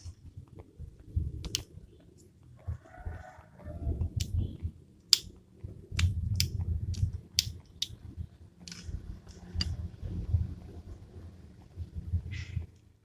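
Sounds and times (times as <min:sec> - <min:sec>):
low rumble of objects handled: 0:00.0 - 0:13.0
sharp clicks and taps: 0:01.4 - 0:02.8, 0:04.0 - 0:09.8.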